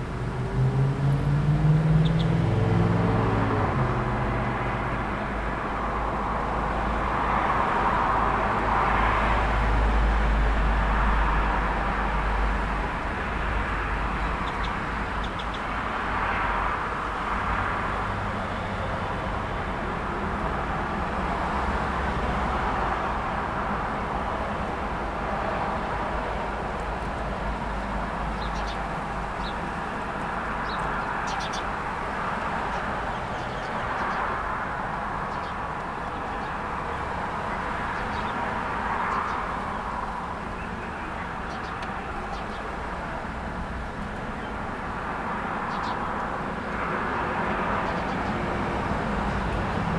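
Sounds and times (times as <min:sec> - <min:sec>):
road traffic rumble: 0:00.0 - 0:49.9
small birds chirping: 0:02.0 - 0:02.4, 0:14.2 - 0:15.7, 0:28.3 - 0:29.6, 0:30.6 - 0:31.7, 0:32.6 - 0:34.2, 0:37.9 - 0:39.5, 0:40.5 - 0:42.7, 0:45.7 - 0:46.1.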